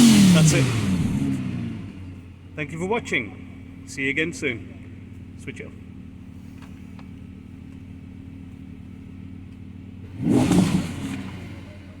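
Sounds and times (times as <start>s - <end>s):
engine rev blip: 0.0s - 2.2s
car engine idling: 0.0s - 12.0s.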